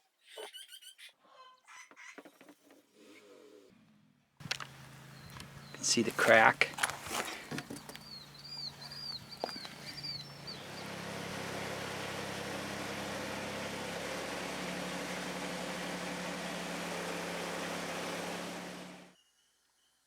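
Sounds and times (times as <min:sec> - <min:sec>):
small bird chirping: 0:00.2 - 0:02.4, 0:04.4 - 0:16.7.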